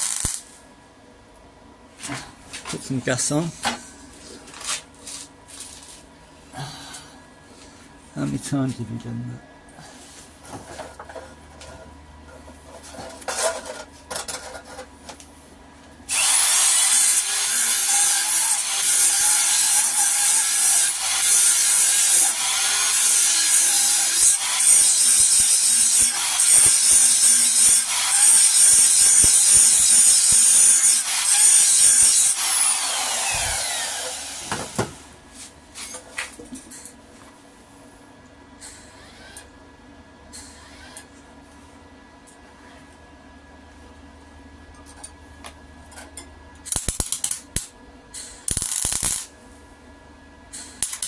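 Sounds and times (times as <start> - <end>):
electric grinder grinding metal: 0.0 - 0.4, 16.1 - 34.8, 48.5 - 49.3
grinder winding down whine: 16.1 - 19.3, 31.0 - 34.8.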